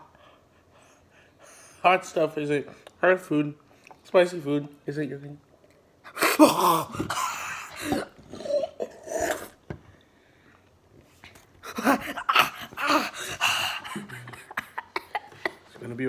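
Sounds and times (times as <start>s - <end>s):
person gasping and blowing breaths: 6.1s - 9.6s, 11.6s - 15.6s.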